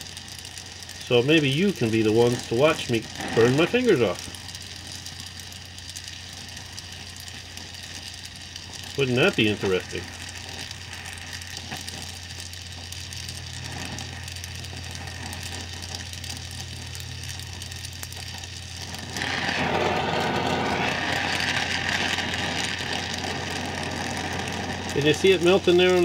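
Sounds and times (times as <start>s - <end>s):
welder humming: 0.0s - 26.0s
welding arc crackling: 0.0s - 26.0s.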